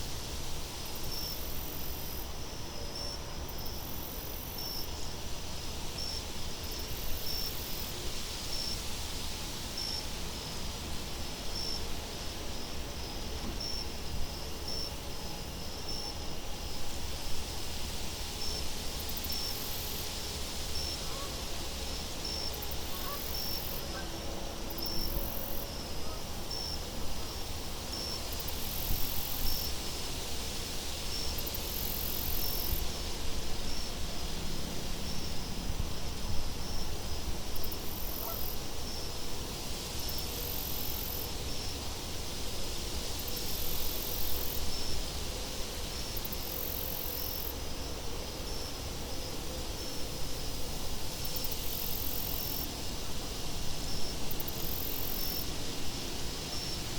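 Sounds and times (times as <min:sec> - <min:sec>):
crickets chirping: 0:00.0 - 0:56.9.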